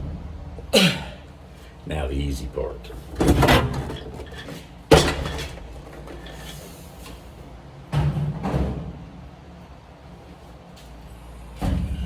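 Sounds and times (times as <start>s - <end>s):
metal clatter: 3.0s - 6.6s.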